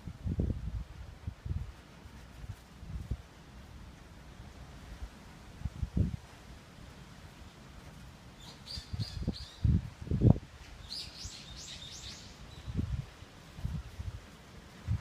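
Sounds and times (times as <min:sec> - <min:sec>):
wind buffeting microphone: 0:00.0 - 0:03.3, 0:05.6 - 0:06.3, 0:08.7 - 0:15.0
small birds chirping: 0:08.4 - 0:09.8, 0:10.8 - 0:12.8.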